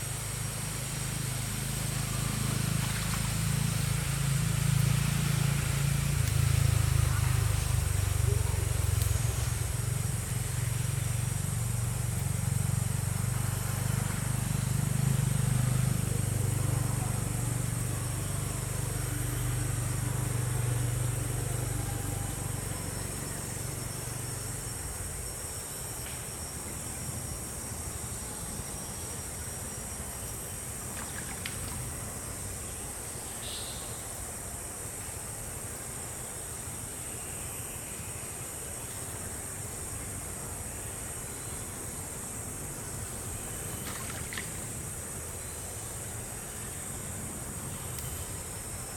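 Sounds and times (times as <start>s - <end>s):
low engine rumble: 0.0s - 25.3s
steady high-pitched hiss: 0.0s - 48.9s
faint ticks: 47.8s - 48.4s.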